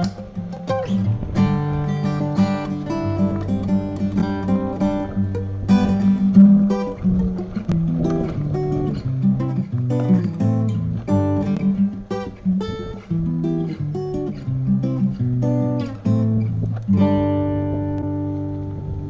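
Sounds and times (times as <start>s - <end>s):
acoustic guitar music: 0.0s - 19.0s.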